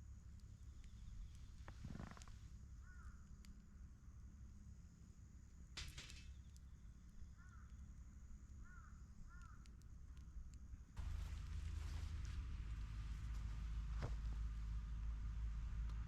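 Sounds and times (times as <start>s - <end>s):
low outdoor rumble: 0.0s - 16.0s
crow cawing: 2.8s - 3.2s, 7.4s - 7.7s, 8.6s - 9.7s
rustle: 11.0s - 16.0s.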